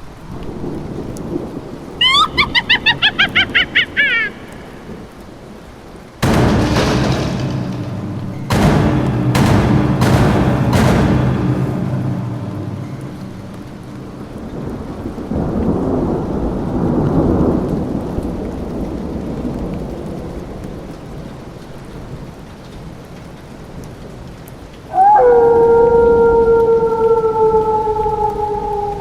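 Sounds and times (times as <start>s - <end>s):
thunder rumbling: 0.0s - 22.3s, 24.0s - 29.0s
rain: 0.0s - 29.0s
loud howl: 2.0s - 4.4s, 24.9s - 29.0s.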